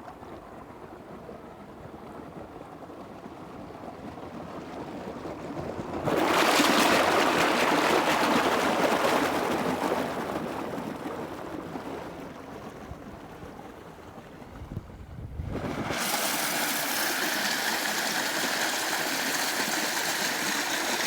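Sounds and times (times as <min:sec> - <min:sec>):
rushing water: 0:15.6 - 0:21.0.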